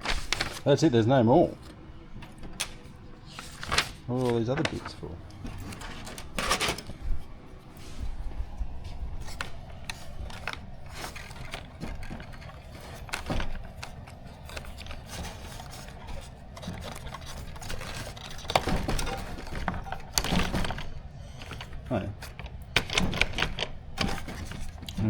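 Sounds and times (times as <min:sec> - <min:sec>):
small parts clicking and rattling: 0:09.2 - 0:25.0.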